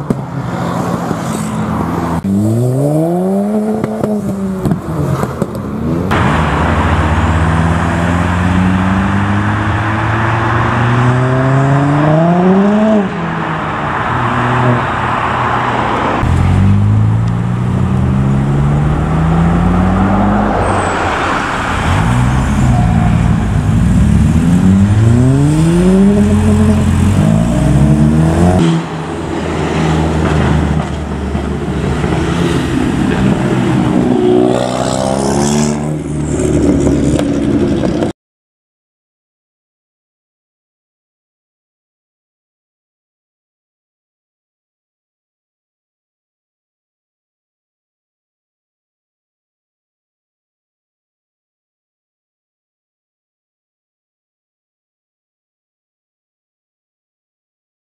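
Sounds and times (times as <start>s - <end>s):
car engine accelerating hard: 5.8s - 13.1s, 16.0s - 28.9s.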